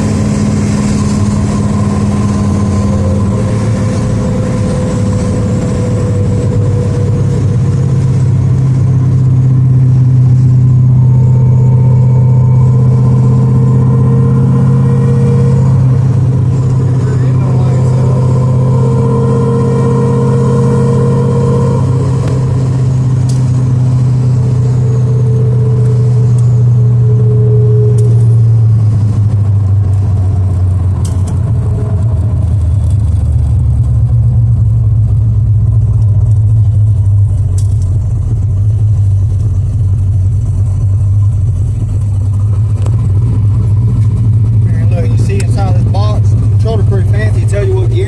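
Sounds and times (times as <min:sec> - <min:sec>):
car engine droning: 0:00.0 - 0:48.0.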